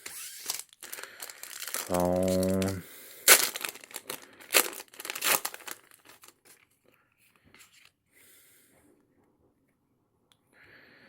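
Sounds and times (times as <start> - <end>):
cards rustling: 0.0 - 6.7
foil wrapper tearing and crinkling: 0.0 - 6.7.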